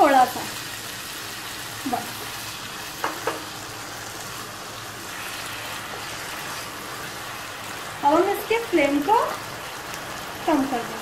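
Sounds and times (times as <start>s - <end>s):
okra sizzling in oil: 0.0s - 11.0s
spatula knocking on pan: 3.0s - 3.5s
spatula stirring: 5.1s - 7.4s.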